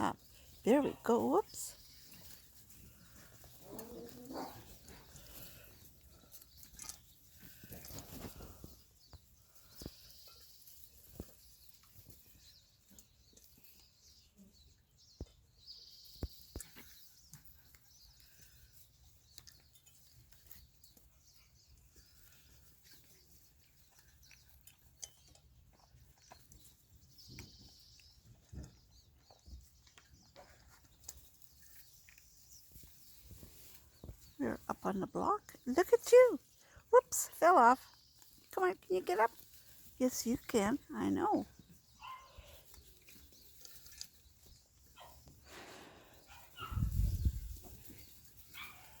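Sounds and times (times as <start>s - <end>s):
small animals rustling in sawdust: 0.0s - 49.0s.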